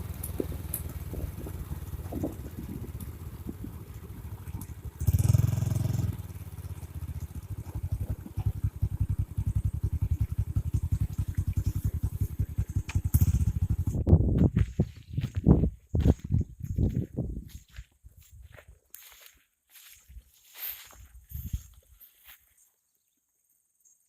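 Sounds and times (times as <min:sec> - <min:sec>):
small motorcycle engine putter: 0:00.0 - 0:14.0.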